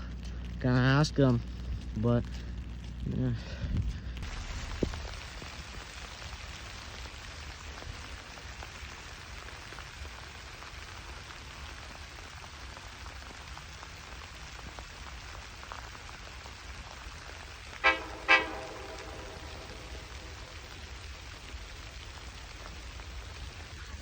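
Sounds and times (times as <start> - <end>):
steady rain hiss: 0.0 - 24.0
low rumble: 16.9 - 24.0.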